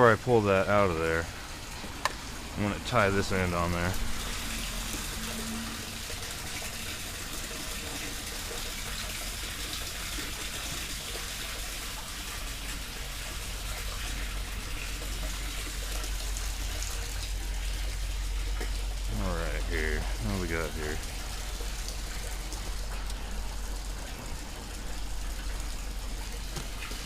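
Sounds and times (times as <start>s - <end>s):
running water rushing: 0.0s - 27.0s.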